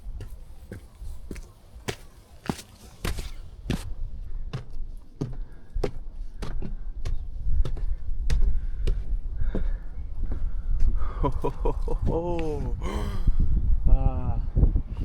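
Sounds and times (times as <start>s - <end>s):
footsteps in snow: 0.1s - 4.0s
wind rumble on microphone: 3.0s - 15.0s.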